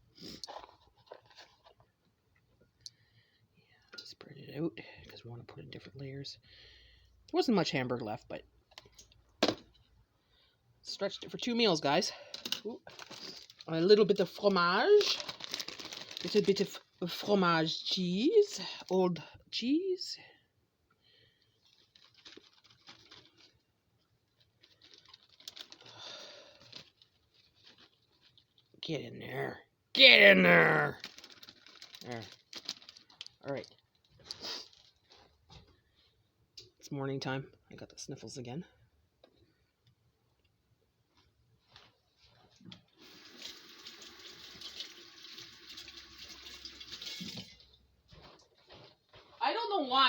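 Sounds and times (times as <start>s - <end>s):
soft rustling: 34.0s - 36.2s, 41.1s - 42.7s, 48.0s - 49.9s
tap water running into sink: 43.0s - 47.7s.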